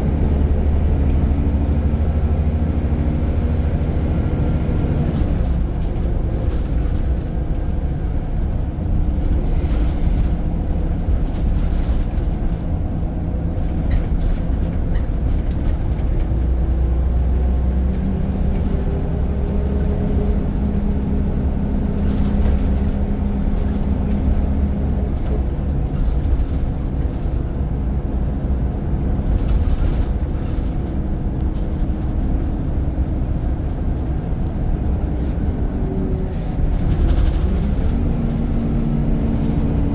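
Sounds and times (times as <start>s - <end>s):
bus diesel engine rumbling: 0.0s - 39.9s.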